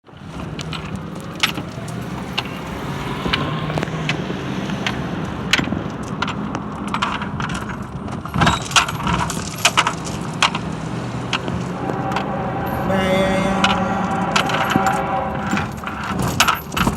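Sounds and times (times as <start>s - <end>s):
metallic clanks and rattles: 4.8s - 12.3s, 14.4s - 16.9s
freight train diesel drone: 9.7s - 16.6s.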